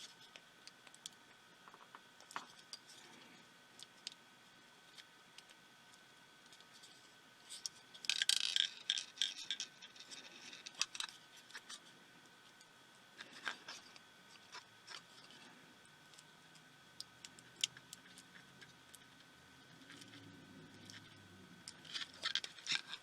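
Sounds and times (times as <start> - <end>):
plastic parts and tools scraping: 6.5 - 11.9, 13.2 - 16.2, 19.8 - 23.0
rubbing and scratching: 13.2 - 15.6, 19.8 - 23.0.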